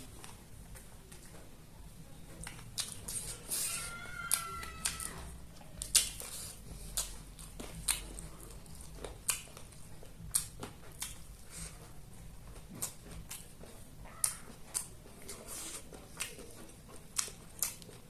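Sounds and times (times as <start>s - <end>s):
wet mouth smacks chewing: 2.4s - 5.2s, 5.8s - 11.9s, 12.6s - 18.0s.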